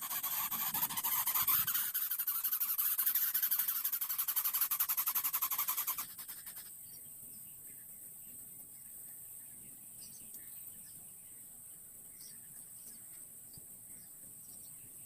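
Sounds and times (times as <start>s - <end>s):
chick rasping begging call: 0.0s - 6.6s
faint small chirps: 0.5s - 15.0s.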